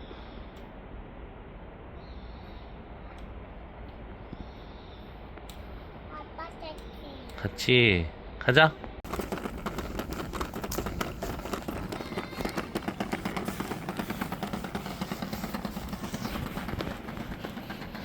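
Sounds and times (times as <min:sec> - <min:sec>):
scuffing footsteps on path: 0:09.0 - 0:18.0.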